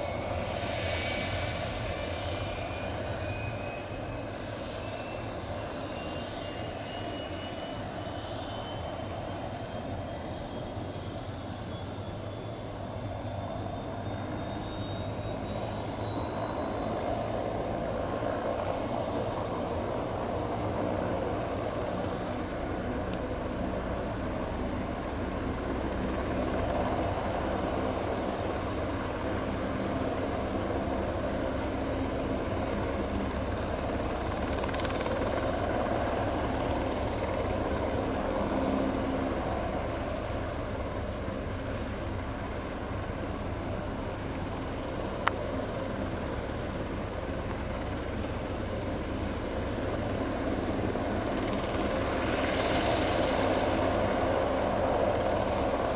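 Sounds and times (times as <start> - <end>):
helicopter rotor running: 0.0 - 55.9
high turbine whine: 0.0 - 55.9.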